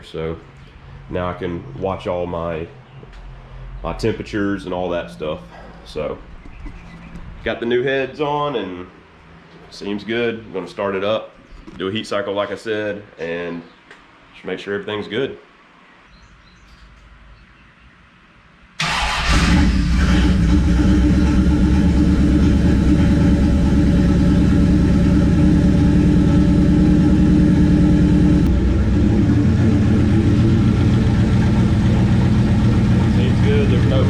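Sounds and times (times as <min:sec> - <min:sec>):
car engine starting and idling: 0:18.8 - 0:34.0.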